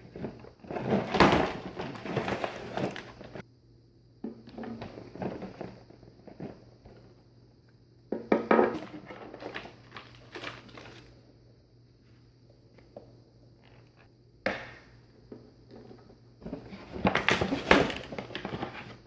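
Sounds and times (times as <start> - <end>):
packaging rustling: 0.6 - 3.4, 9.3 - 11.1.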